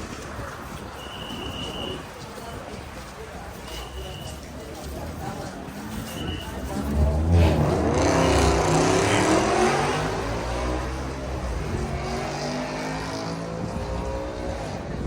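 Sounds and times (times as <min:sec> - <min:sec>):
car engine with loud exhaust: 0:05.8 - 0:15.0.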